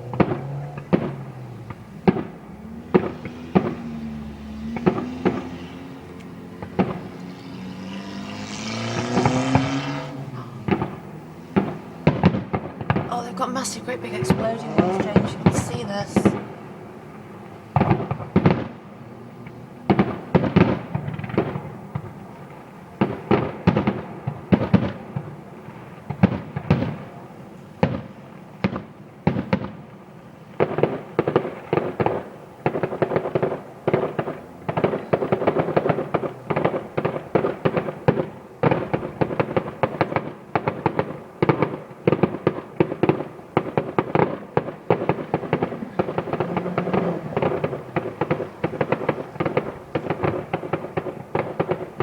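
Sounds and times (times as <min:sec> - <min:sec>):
fireworks crackle: 0:00.0 - 0:52.0
firework shells bursting: 0:34.0 - 0:52.0.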